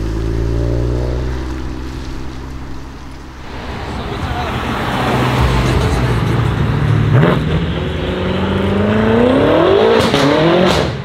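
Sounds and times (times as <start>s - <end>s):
exhaust cracks: 0.0s - 8.0s
car engine accelerating: 0.0s - 11.0s.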